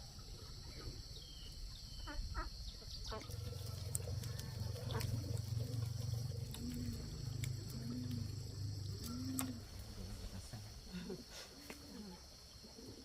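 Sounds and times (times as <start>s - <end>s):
low animal calls: 1.9s - 10.2s.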